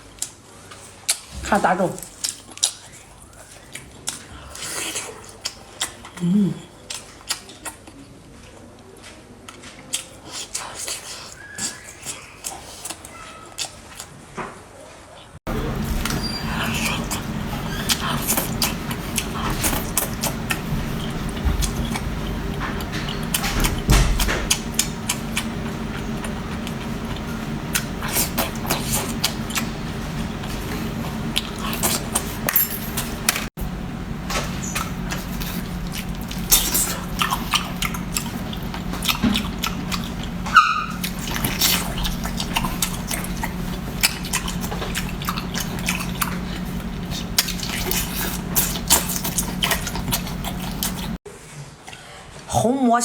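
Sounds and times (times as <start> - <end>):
person chewing and smacking: 0.2 - 1.3, 2.0 - 8.1, 9.5 - 14.1, 15.6 - 33.5, 34.3 - 51.2
steady low hum: 15.5 - 51.2.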